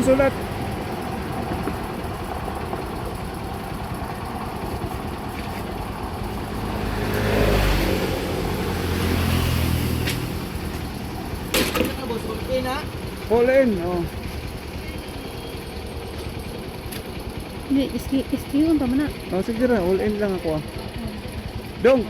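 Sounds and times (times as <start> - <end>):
outdoor background noise: 0.0 - 22.0
vehicle engine: 0.0 - 22.0.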